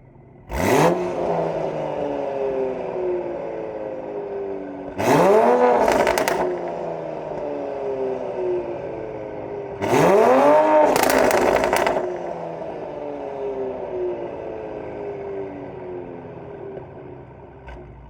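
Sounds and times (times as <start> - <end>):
car engine revving: 0.3 - 16.6
exhaust crackling pops: 5.8 - 7.4, 10.8 - 12.2.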